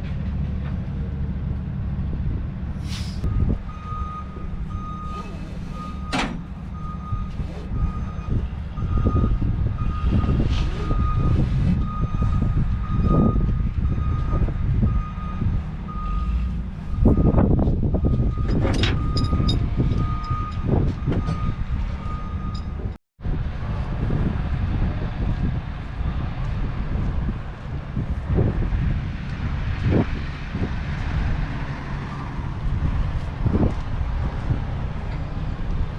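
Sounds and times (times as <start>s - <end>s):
truck backup alarm beeping: 3.2s - 22.9s
metallic clanks and rattles: 18.2s - 21.5s.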